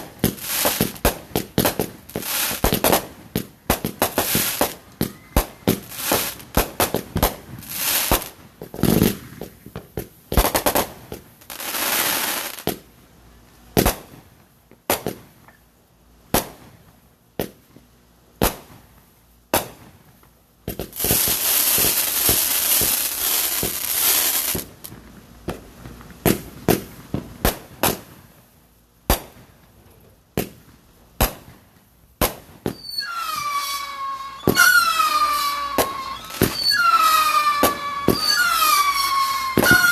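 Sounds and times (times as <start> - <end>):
fireworks bangs: 0.0 - 12.8, 20.7 - 28.2, 30.4 - 39.9
fireworks hissing crackle: 0.0 - 12.9, 18.4 - 29.6, 30.4 - 39.9
falling firework whistle: 0.2 - 1.2, 4.0 - 8.3, 21.0 - 24.7, 32.6 - 39.9.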